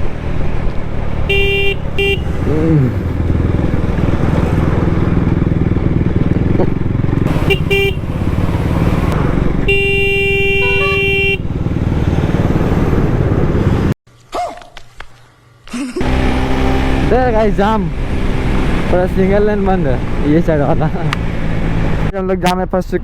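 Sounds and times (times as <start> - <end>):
motorcycle engine running: 0.0 - 14.0
vehicle horns honking: 1.2 - 2.6, 7.3 - 8.4, 9.6 - 11.5.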